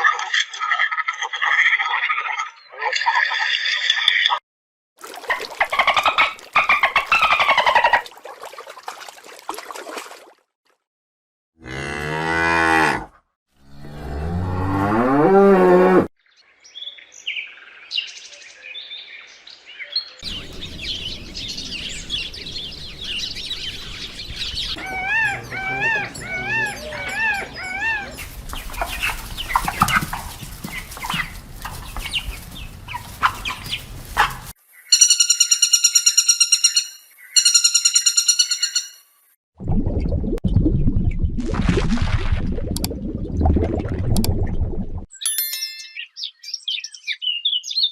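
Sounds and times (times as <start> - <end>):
cow mooing: 11.6 - 16.1, 24.8 - 28.2
repeated chirping birdsong: 16.3 - 39.1, 45.2 - 47.9
bird chirps: 19.8 - 39.1, 45.2 - 47.9.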